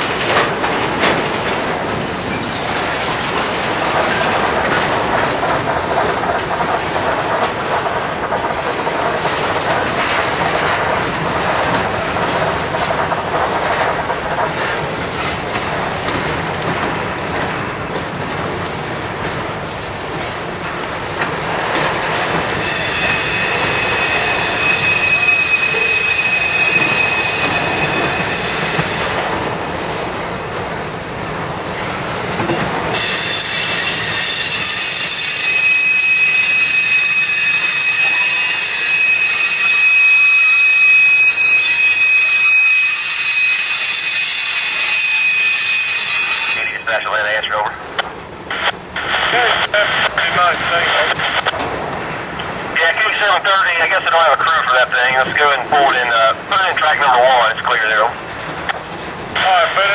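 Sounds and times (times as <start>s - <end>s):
rumble and clatter of wheels: 0.0s - 25.0s, 25.8s - 35.6s, 51.1s - 52.8s, 58.1s - 59.4s
high wheel squeal: 22.4s - 29.3s, 32.9s - 46.9s.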